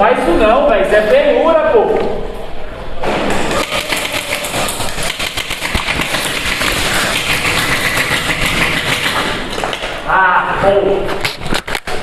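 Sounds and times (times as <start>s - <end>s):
airsoft guns firing rapidly: 3.3s - 9.7s.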